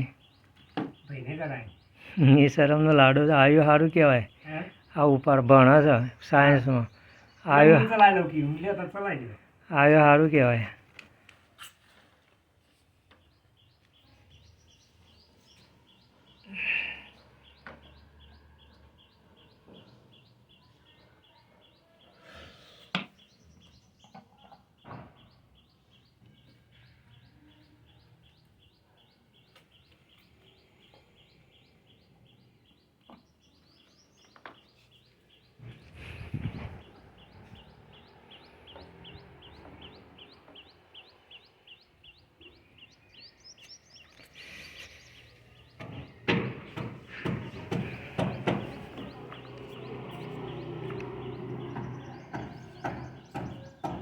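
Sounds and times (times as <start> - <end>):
bird chirping: 0.0 - 10.7, 13.1 - 22.2, 22.9 - 54.0
knocking and clatter: 45.7 - 54.0.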